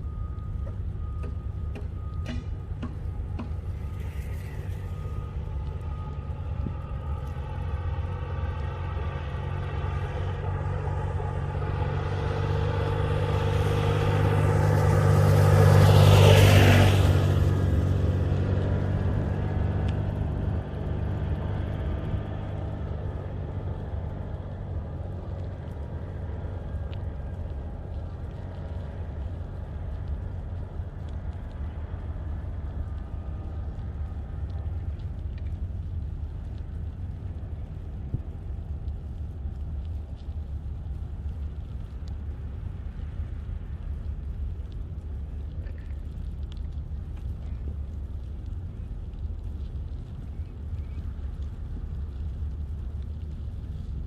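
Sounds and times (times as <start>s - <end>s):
steady low rumble: 0.0s - 54.0s
motor vehicle passing: 1.1s - 54.0s.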